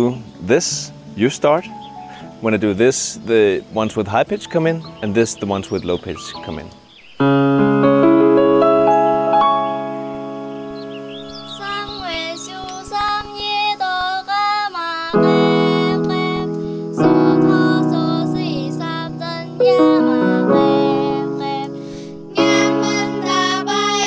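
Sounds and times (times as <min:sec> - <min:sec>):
piano chords: 0:04.4 - 0:14.3, 0:15.1 - 0:24.0
girls choir singing: 0:11.4 - 0:24.0.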